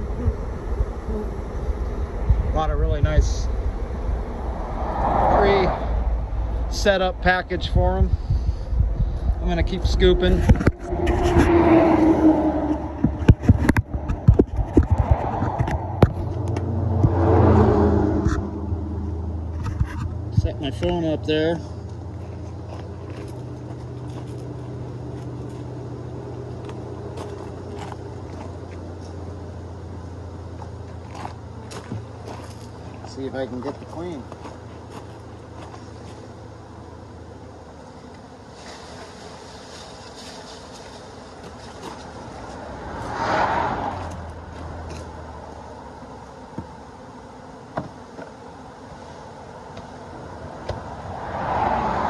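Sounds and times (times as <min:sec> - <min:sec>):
bee swarm buzzing: 0:00.0 - 0:52.0
car passing by: 0:02.1 - 0:06.9, 0:09.7 - 0:14.2, 0:14.8 - 0:19.6, 0:41.9 - 0:45.6, 0:50.2 - 0:52.0.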